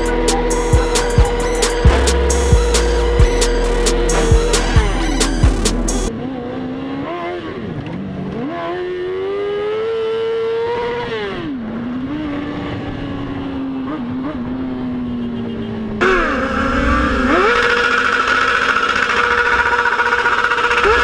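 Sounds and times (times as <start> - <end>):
motorcycle engine accelerating: 0.0 - 7.2.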